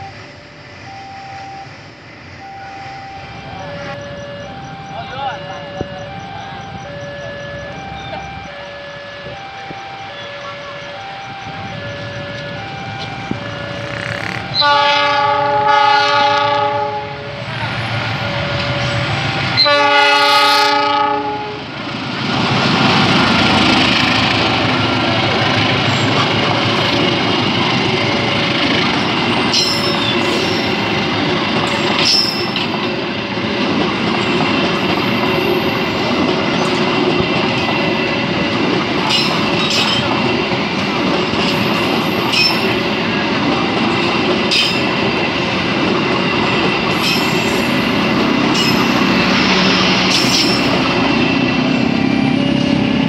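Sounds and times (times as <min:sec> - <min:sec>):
level crossing warning tone: 0:00.0 - 0:21.5, 0:22.6 - 0:53.0
locomotive horn blasts: 0:02.6 - 0:17.4, 0:19.6 - 0:21.7
train wheels clickety-clack: 0:12.3 - 0:15.0, 0:21.9 - 0:53.0
wheel squeals: 0:31.7 - 0:32.7.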